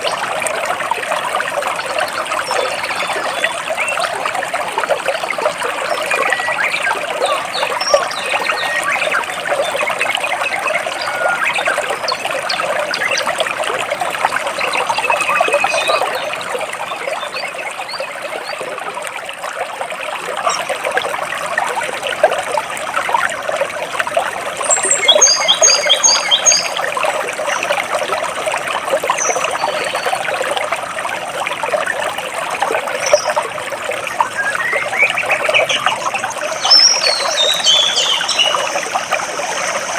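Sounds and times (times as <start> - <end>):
stream trickling between rocks: 0.0 - 39.9
birds chirping: 5.6 - 13.4, 24.6 - 26.8, 34.1 - 39.9.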